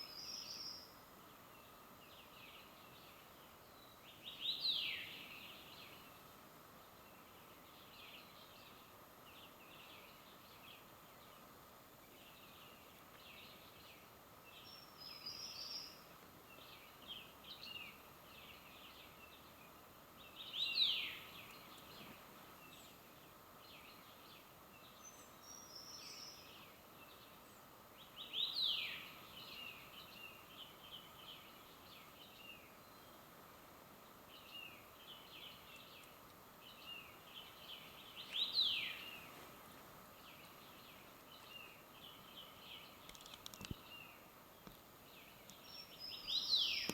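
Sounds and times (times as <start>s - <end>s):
faint steady hiss: 0.0s - 46.9s
birds chirping: 40.0s - 46.9s.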